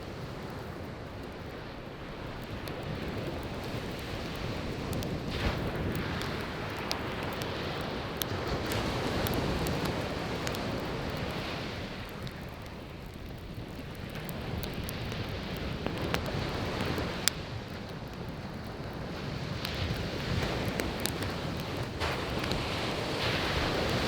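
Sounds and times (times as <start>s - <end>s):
wood fire crackling and popping: 0.0s - 24.0s
waves breaking on shore: 2.9s - 12.4s, 19.0s - 24.0s.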